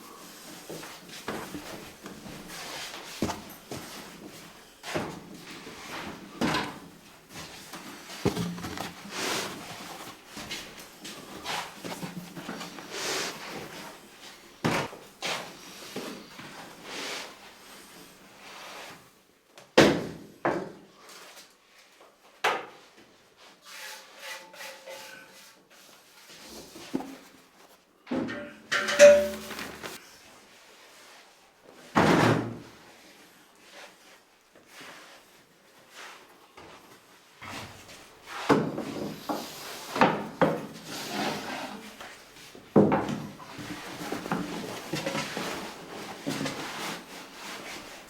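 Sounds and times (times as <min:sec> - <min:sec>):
light clatter with ringing: 0:28.3 - 0:29.6.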